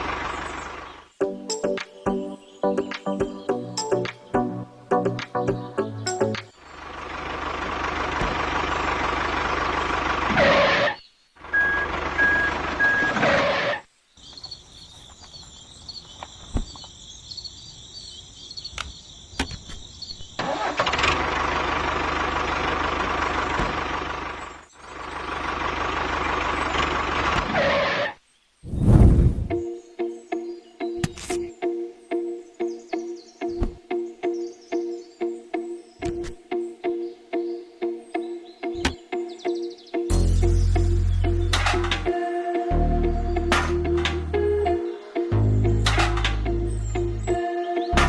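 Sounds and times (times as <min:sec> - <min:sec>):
motor vehicle engine running: 0:00.0 - 0:01.2, 0:05.4 - 0:13.7, 0:20.4 - 0:28.0, 0:40.1 - 0:42.2, 0:42.8 - 0:48.0.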